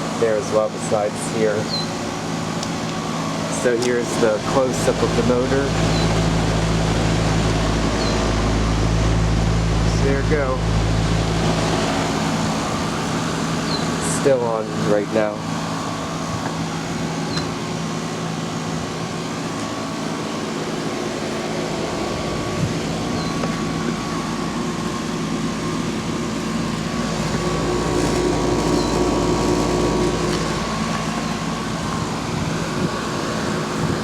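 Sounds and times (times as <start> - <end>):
air conditioner unit whirring: 0.0 - 34.0
low rumble: 5.0 - 13.6, 26.2 - 33.0.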